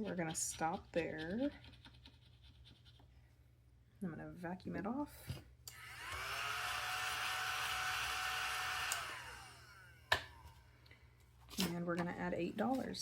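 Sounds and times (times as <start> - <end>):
handheld vacuum motor whining: 5.7 - 10.0.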